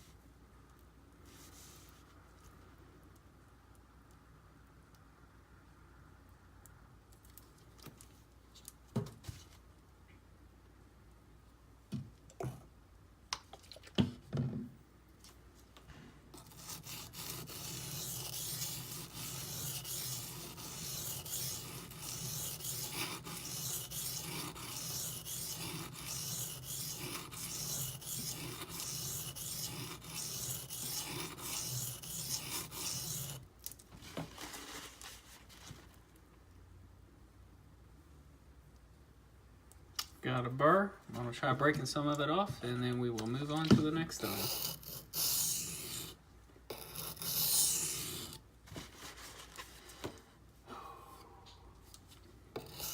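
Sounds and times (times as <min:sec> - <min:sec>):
blade scraping on a whetstone: 0:16.4 - 0:33.4, 0:44.1 - 0:48.4, 0:52.6 - 0:52.9.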